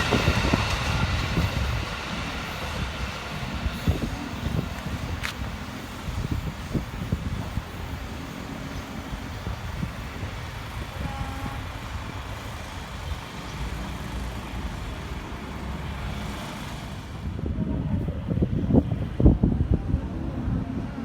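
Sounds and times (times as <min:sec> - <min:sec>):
train wheels knocking on track: 0:00.0 - 0:15.4
train rumbling past: 0:00.0 - 0:21.0.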